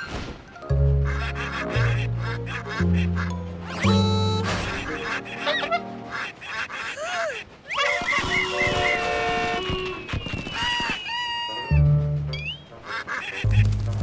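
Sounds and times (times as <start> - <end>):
cartoon ducks quacking: 1.0 - 11.7, 12.8 - 13.8
whistle-like sound effects: 3.7 - 4.9, 7.7 - 12.7.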